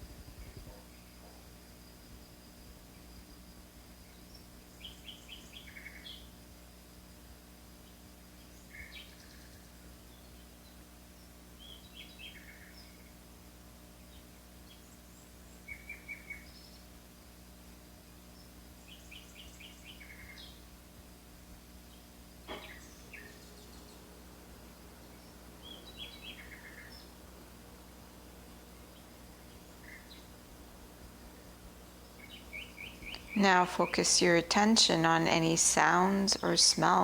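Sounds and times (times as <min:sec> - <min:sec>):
faint background hum: 0:00.0 - 0:37.0
songbirds calling: 0:04.0 - 0:06.3, 0:07.8 - 0:13.2, 0:14.0 - 0:17.0, 0:18.3 - 0:20.8, 0:21.8 - 0:37.0.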